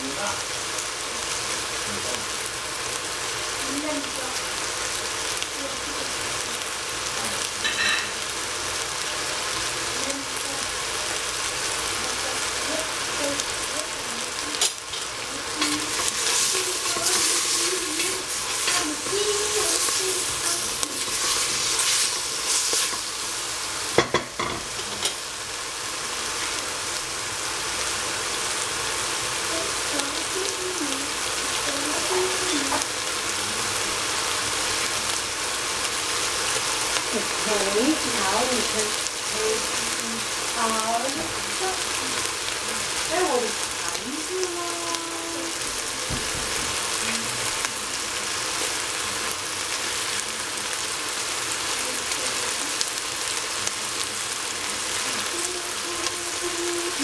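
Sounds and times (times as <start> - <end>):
greens sizzling in a pot: 0.0 - 57.0
wooden spatula scraping pot: 14.6 - 23.2.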